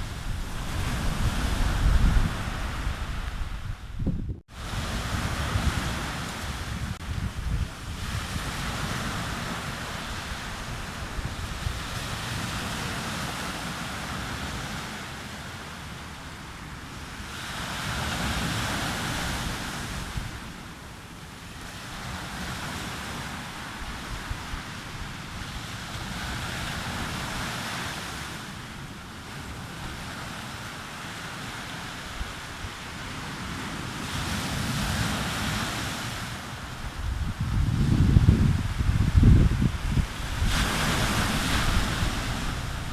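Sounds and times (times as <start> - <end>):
sea waves breaking on beach: 0.0 - 3.8, 4.4 - 42.9
wind rumbling on microphone: 0.0 - 14.8, 31.6 - 42.9.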